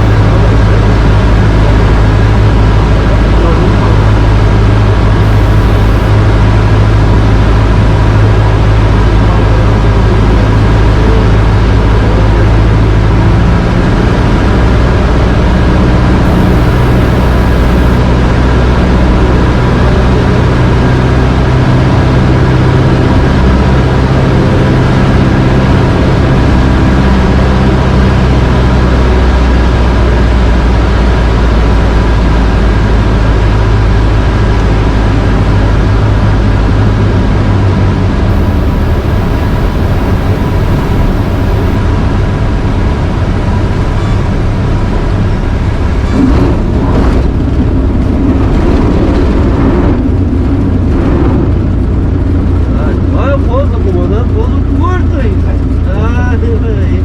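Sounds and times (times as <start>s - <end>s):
light aircraft engine and propeller: 0.0s - 57.0s.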